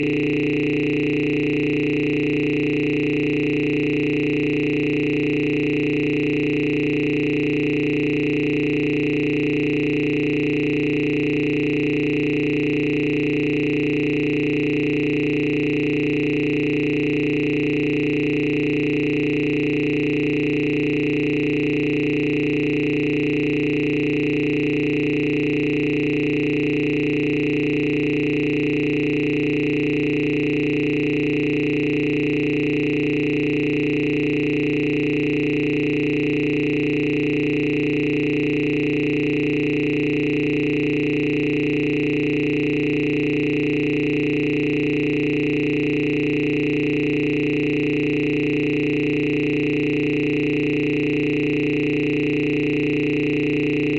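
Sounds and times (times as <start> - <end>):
electronic drone of held tones: 0.0 - 20.6.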